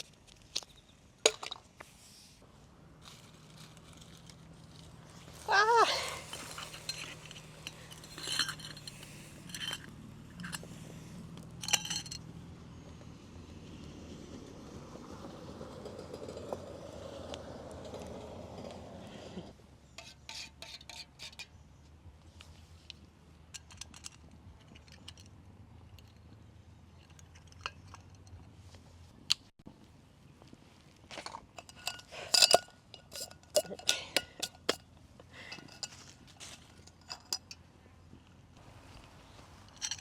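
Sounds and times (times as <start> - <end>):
metal cookware clinking: 5.6 - 10.6, 11.6 - 12.2, 31.5 - 34.8, 35.4 - 36.2, 36.8 - 37.6.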